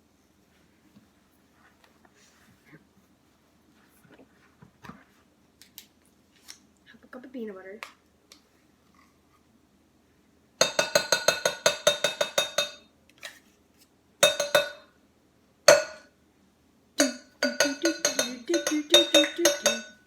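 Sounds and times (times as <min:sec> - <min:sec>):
spoon tapping against dish: 0:10.6 - 0:12.9, 0:14.2 - 0:14.9, 0:15.7 - 0:16.1, 0:17.0 - 0:20.0.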